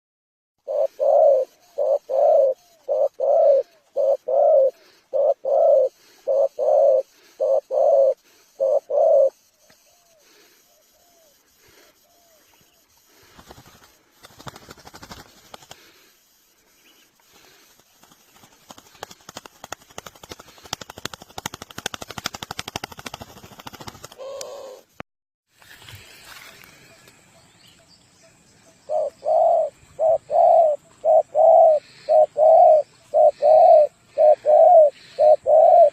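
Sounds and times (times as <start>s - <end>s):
dove cooing: 0.6s - 11.4s, 24.1s - 25.0s, 28.9s - 35.9s
rapid crackling clicks: 13.3s - 16.0s, 17.3s - 24.5s.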